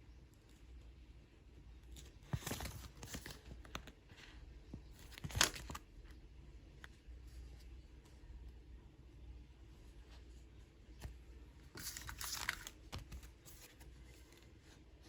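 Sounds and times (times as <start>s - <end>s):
paper rustling and tearing: 11.7s - 14.4s.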